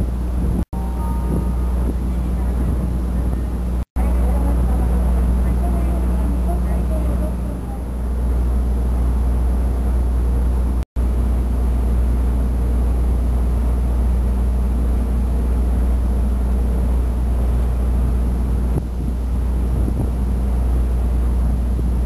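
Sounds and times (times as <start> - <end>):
wind on microphone: 0.0 - 10.8, 16.3 - 22.0
ferry diesel engines rumbling: 0.0 - 22.0.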